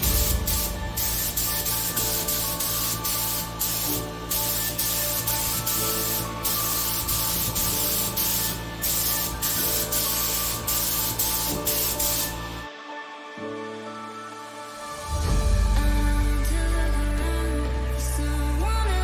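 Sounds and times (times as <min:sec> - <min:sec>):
spray gun hissing: 0:00.0 - 0:12.7
background music: 0:00.0 - 0:19.0.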